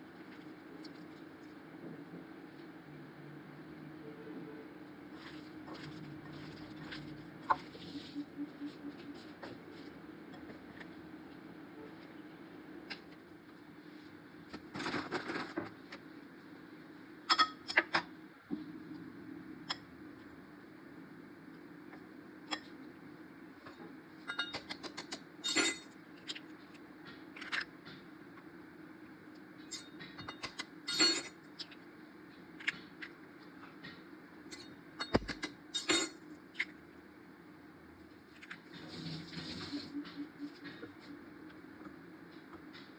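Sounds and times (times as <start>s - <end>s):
low steady hum: 0.0s - 42.9s
utensils clinking on cookware: 24.3s - 25.9s, 29.7s - 31.3s, 34.5s - 36.2s
scrape or rustle: 38.7s - 39.9s.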